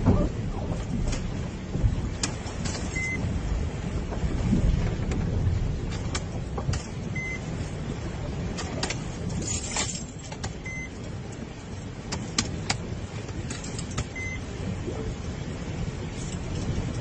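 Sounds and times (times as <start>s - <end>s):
vehicle low rumble: 0.0s - 17.0s
short electronic beep: 3.0s - 3.2s, 7.2s - 7.4s, 14.2s - 14.4s.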